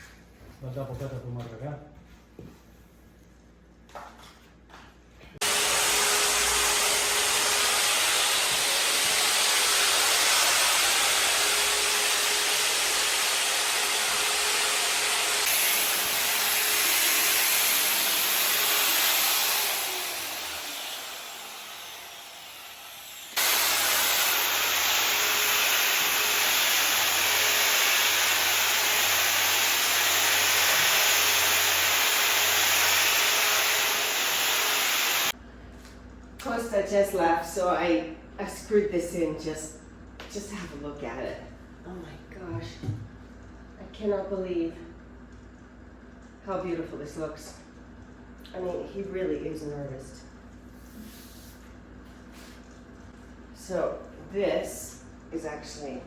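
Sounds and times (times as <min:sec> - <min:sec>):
power tool cutting marble: 0:05.4 - 0:35.4.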